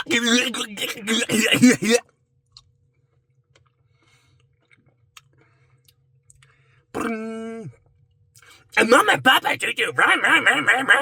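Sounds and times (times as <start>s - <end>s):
man's voice: 0.0s - 2.0s, 8.8s - 11.0s
chewing and wet mouth clicks: 4.4s - 6.5s.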